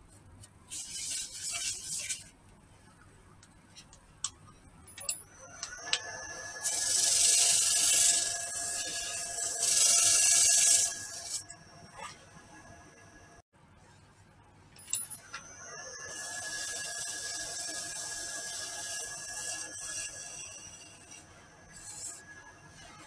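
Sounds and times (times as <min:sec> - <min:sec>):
lathe motor whining: 0:05.4 - 0:11.6.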